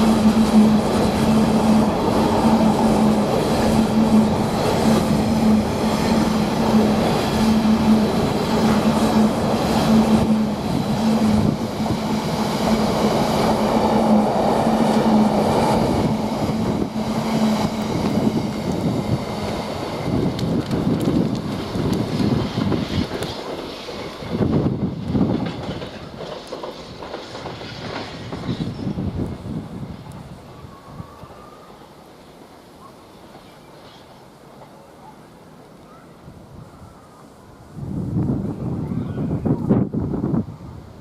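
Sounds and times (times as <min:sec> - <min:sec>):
pulsing low locomotive hum: 0:00.0 - 0:22.3
freight train rumbling past: 0:00.0 - 0:41.0.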